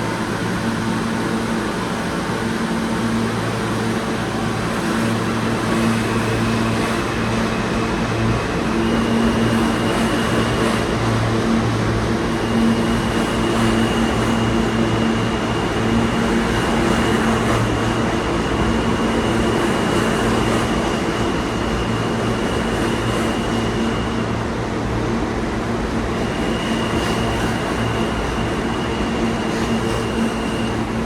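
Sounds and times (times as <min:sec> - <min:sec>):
subway train rumbling: 0:00.0 - 0:31.0.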